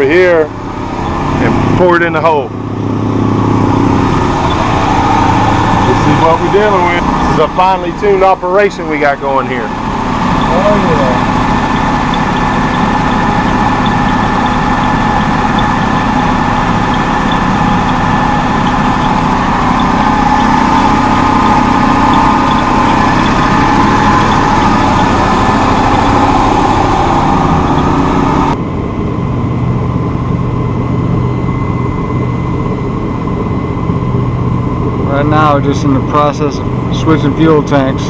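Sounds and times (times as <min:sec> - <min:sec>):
boat inboard engine running: 0:00.0 - 0:38.0.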